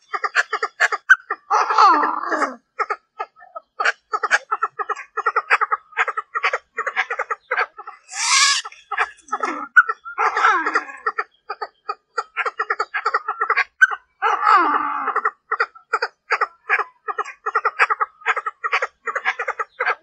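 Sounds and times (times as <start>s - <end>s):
harsh bird chattering: 0.0s - 1.6s, 2.8s - 14.1s, 15.1s - 20.0s
francolin clucking call: 2.8s - 14.1s.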